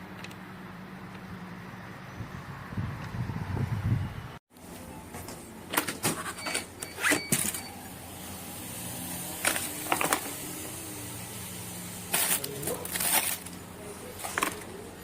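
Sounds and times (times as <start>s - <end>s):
small electric motor humming: 7.6s - 12.9s.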